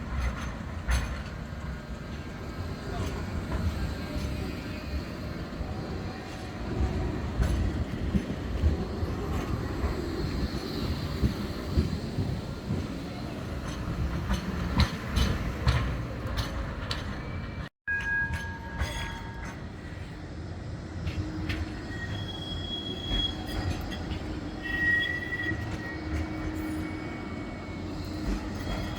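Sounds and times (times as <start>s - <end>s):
wheels clicking over rail joints: 0.0s - 17.7s
tram rumbling on track: 0.0s - 28.9s.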